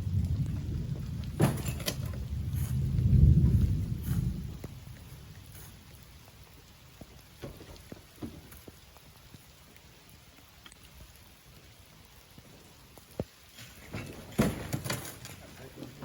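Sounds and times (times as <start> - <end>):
sand and grit being shovelled: 2.4 - 3.0.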